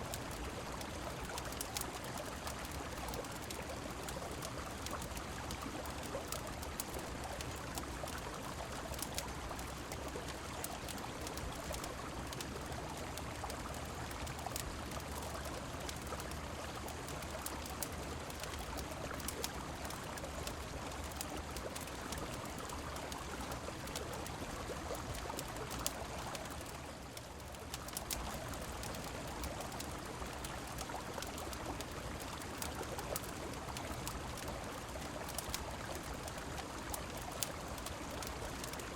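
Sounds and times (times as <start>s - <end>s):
flowing river water: 0.0s - 38.9s
rain: 0.0s - 38.9s
faint sharp clicks: 8.9s - 38.9s.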